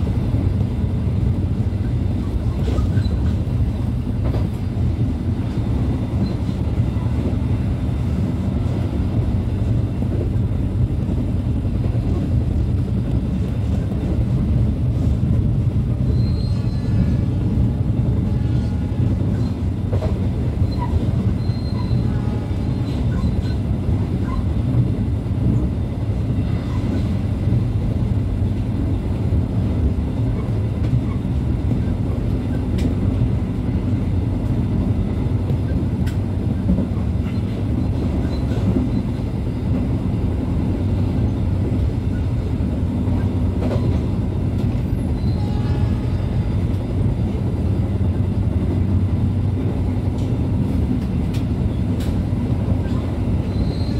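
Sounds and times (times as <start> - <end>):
train wheels rumbling on rails: 0.0 - 53.9
faint high wheel squeal: 2.7 - 3.4, 16.1 - 17.4, 20.6 - 23.6, 38.2 - 39.1, 44.9 - 46.3, 52.8 - 53.9.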